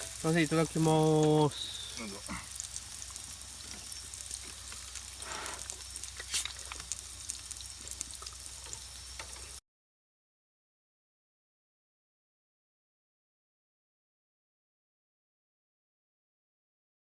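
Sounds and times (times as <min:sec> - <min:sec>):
food sizzling in a pan: 0:00.0 - 0:09.6.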